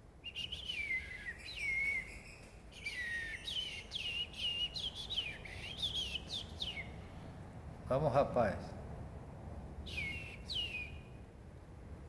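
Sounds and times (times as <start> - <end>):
bird whistling descending notes: 0.2 - 6.9, 9.9 - 11.0.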